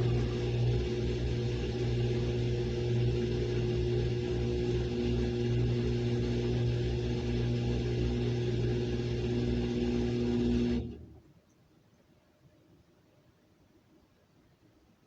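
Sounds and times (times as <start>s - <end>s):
washing machine running: 0.0s - 11.2s.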